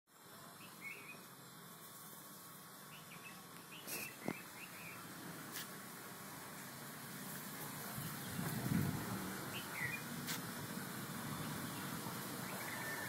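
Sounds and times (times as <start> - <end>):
low steady hiss: 0.1 - 13.0
small birds chirping: 0.4 - 1.6, 2.7 - 5.2, 7.5 - 13.0.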